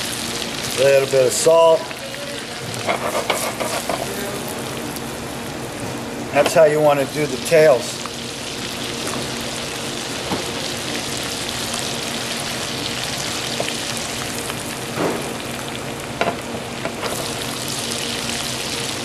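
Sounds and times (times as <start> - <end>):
lobster sizzling in butter: 0.0 - 5.6, 6.4 - 19.0.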